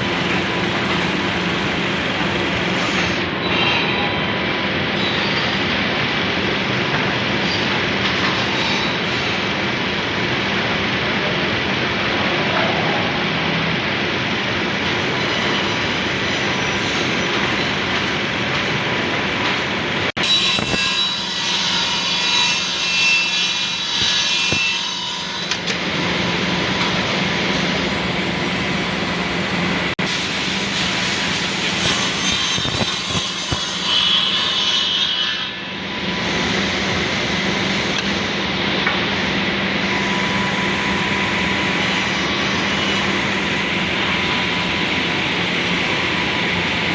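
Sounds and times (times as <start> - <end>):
wood milling machine humming: 0.0 - 3.4, 36.1 - 46.9.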